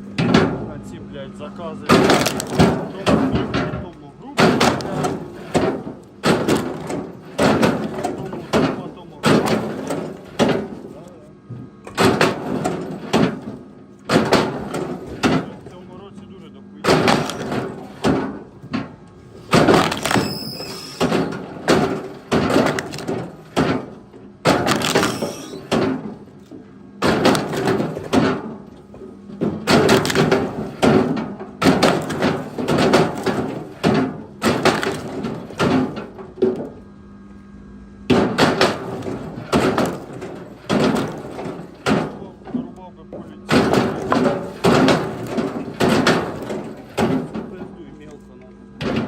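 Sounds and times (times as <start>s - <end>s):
wood chunks knocking and thudding: 1.8s - 15.9s, 16.8s - 36.8s, 38.1s - 49.0s.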